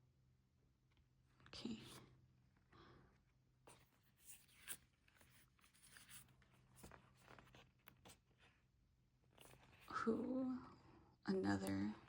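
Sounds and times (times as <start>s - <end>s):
paper rustling: 4.1s - 8.5s.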